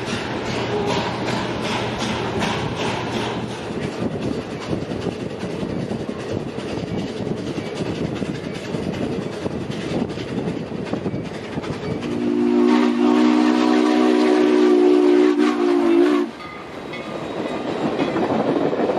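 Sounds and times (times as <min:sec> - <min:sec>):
wheels clicking on rail joints: 0:00.0 - 0:13.2, 0:16.3 - 0:18.9
steam train rumbling: 0:00.0 - 0:18.9
locomotive chime whistle: 0:11.9 - 0:17.2.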